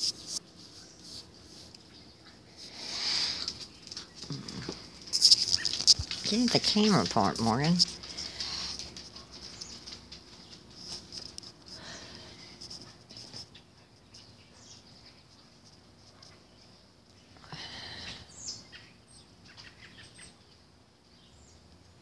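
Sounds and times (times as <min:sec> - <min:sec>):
birds chirping: 0:00.1 - 0:11.1.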